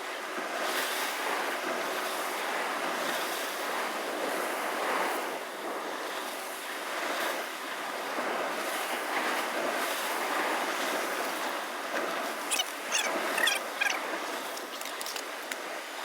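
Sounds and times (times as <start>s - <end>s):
short clicks: 12.5s - 15.6s.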